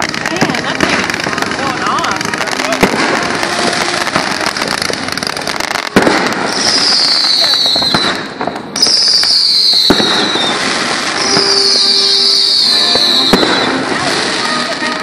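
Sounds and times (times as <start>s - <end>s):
firework bangs: 0.0s - 15.0s
firework crackling: 0.0s - 15.0s
whistling firework shells: 6.0s - 14.1s.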